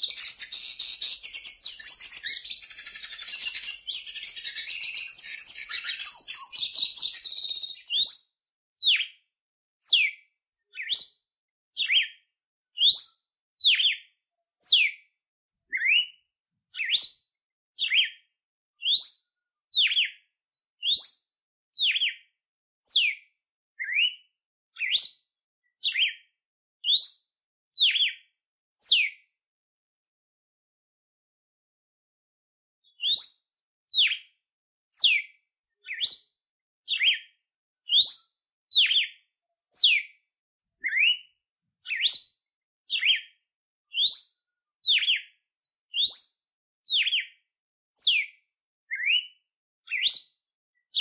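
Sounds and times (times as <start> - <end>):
songbirds twittering: 0.0 - 8.1
whistled bird notes: 0.0 - 8.2, 15.7 - 17.2, 23.8 - 25.2, 25.8 - 26.2, 27.8 - 28.2, 28.8 - 29.2, 32.9 - 34.3, 35.0 - 36.2, 36.9 - 37.3, 37.9 - 39.2, 39.8 - 40.1, 40.8 - 42.3, 42.9 - 44.3, 44.9 - 46.3, 46.9 - 47.4, 48.0 - 51.0.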